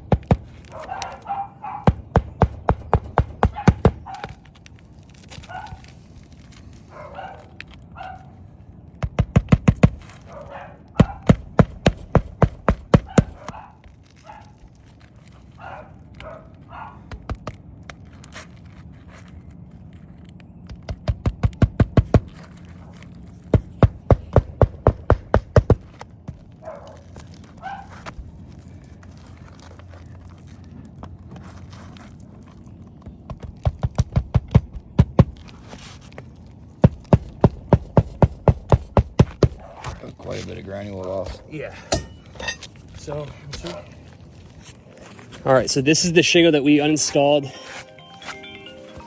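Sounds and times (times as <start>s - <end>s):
sharp knocks on roof shingles: 0.0s - 1.2s, 1.8s - 4.5s, 9.0s - 10.3s, 11.0s - 13.7s, 17.0s - 17.6s, 20.7s - 22.6s, 23.4s - 26.6s, 33.2s - 35.6s, 36.7s - 39.9s
dog barking: 0.7s - 2.0s, 3.4s - 4.4s, 5.4s - 5.9s, 6.9s - 8.3s, 10.2s - 11.5s, 13.0s - 14.6s, 15.6s - 17.1s, 26.6s - 28.0s, 39.4s - 39.9s.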